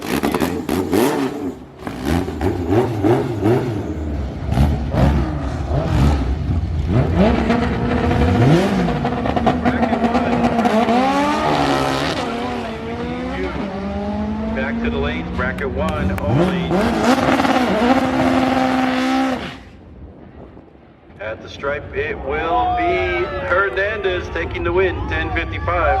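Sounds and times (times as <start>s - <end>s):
cars accelerating through gears: 0.0s - 19.7s
car engines revving: 0.0s - 26.0s.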